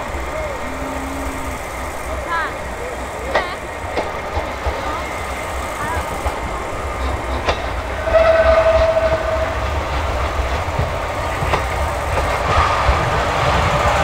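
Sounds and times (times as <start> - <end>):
train low rumble: 0.0 - 14.0
train horn blast: 7.9 - 10.4.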